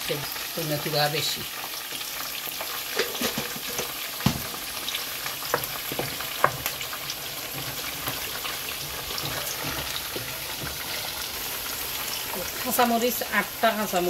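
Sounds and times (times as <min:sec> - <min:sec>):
masala sizzling in oil: 0:00.0 - 0:14.0.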